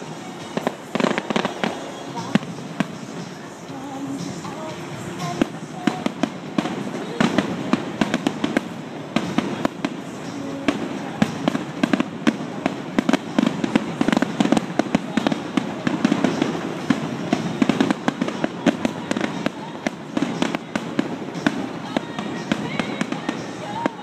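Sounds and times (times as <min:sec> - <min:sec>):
fireworks bangs and crackles: 0:00.0 - 0:24.0
fireworks rumble: 0:00.0 - 0:24.0.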